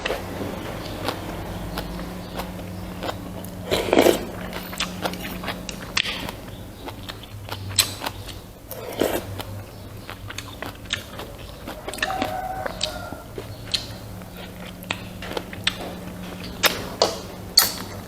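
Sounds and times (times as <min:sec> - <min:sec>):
loud noisy bursts: 0:00.0 - 0:10.5
low hum: 0:00.0 - 0:18.0
mouth clicks and chewing: 0:00.0 - 0:18.0.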